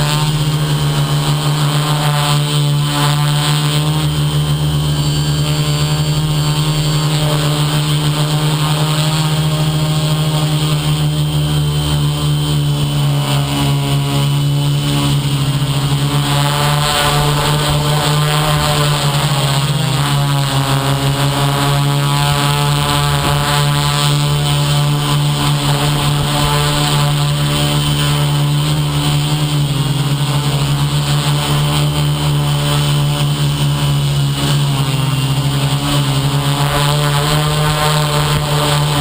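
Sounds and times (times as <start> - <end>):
drone motors humming: 0.0 - 39.0.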